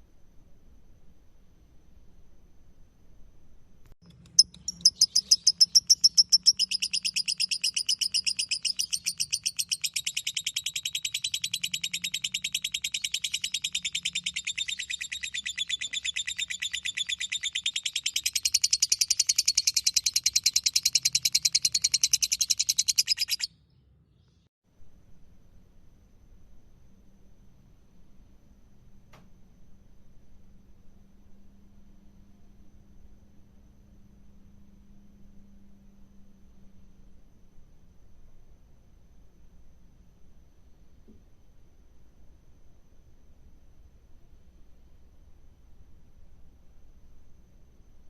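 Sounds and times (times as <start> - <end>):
bird rapid chattering trill: 4.0 - 23.5.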